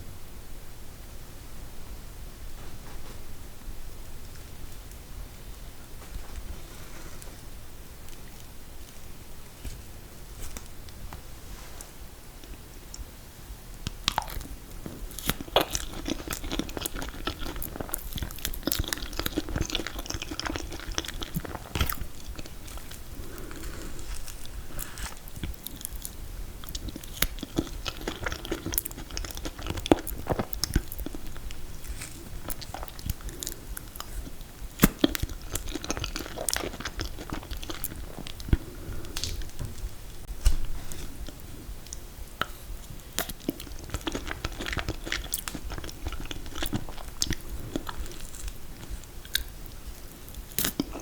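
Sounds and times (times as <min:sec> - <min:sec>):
chewing and biting: 0:13.9 - 0:51.0.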